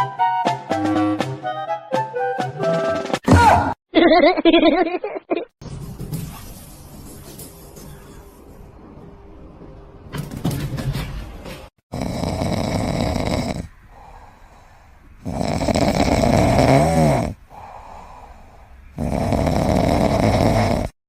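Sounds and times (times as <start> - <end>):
pet snoring: 11.9 - 14.4, 15.2 - 21.0
quiet breaths: 12.0 - 16.5, 17.3 - 20.9.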